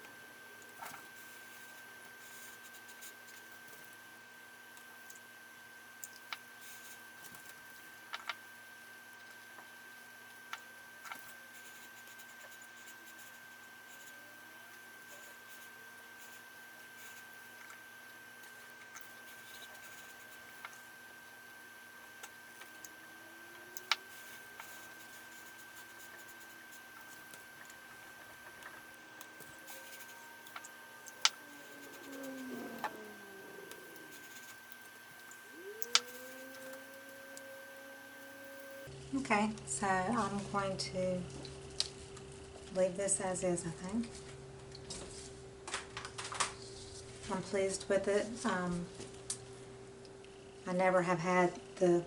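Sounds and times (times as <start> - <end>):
faint high whine: 0.0 - 39.0
faint high-pitched hum: 0.0 - 41.5.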